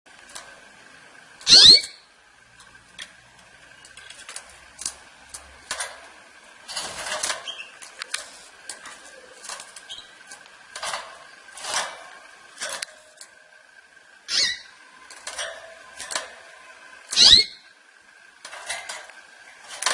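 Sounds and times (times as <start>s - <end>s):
bird clicks and rustles in cage: 0.1s - 0.6s, 2.5s - 13.4s, 15.0s - 17.2s, 18.4s - 19.9s.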